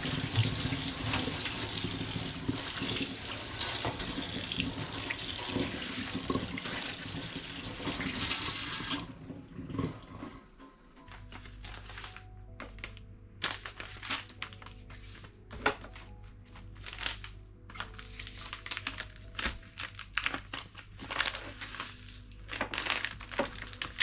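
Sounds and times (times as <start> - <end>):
soft background music: 0.0 - 24.0
packaging crinkling and rustling: 11.0 - 24.0.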